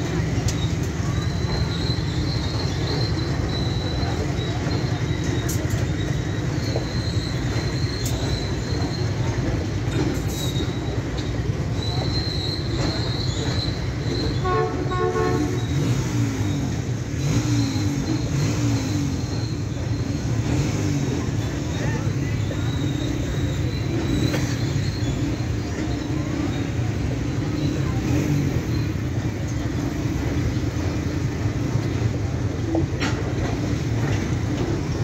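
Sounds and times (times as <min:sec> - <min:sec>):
freight train wheels rumbling: 0:00.0 - 0:35.0
high wheel squeal: 0:00.0 - 0:35.0
horn beeps: 0:11.9 - 0:20.1.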